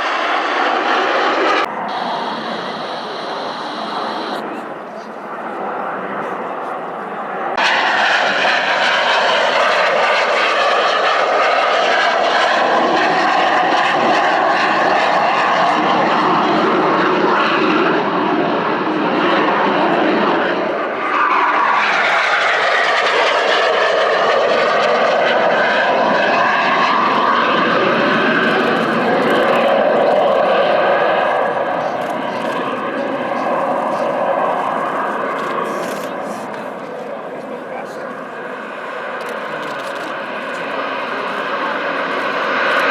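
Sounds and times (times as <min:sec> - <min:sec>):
high engine whine: 0:00.0 - 0:05.0
jet engines roaring: 0:00.0 - 0:42.9.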